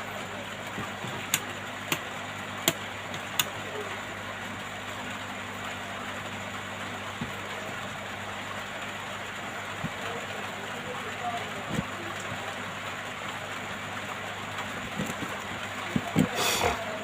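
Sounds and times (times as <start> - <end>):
hot air gun hissing: 16.3 - 16.8.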